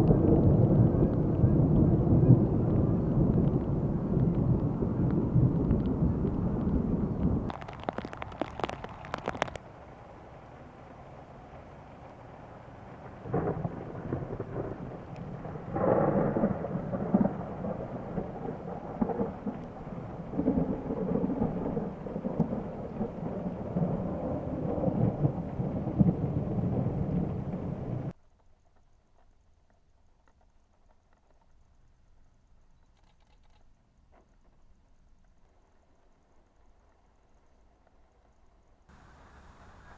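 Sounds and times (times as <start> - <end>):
thunder rolling: 0.0 - 28.2.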